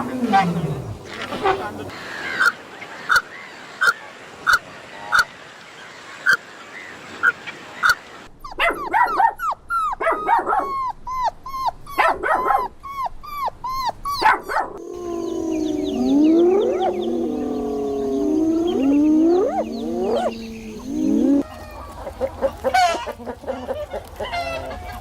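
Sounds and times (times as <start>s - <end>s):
dog yelping and whimpering: 8.5s - 21.4s
dog yapping: 14.1s - 21.4s.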